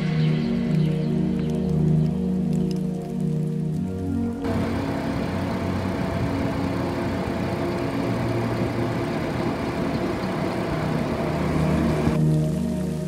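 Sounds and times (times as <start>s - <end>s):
car engine idling: 4.4s - 12.3s.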